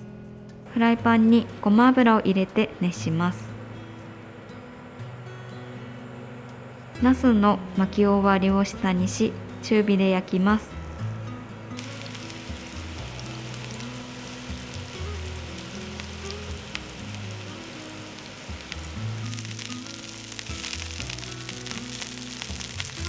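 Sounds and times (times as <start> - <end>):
background music with low notes: 0.0 - 23.0
food sizzling in frying pan: 11.8 - 23.0.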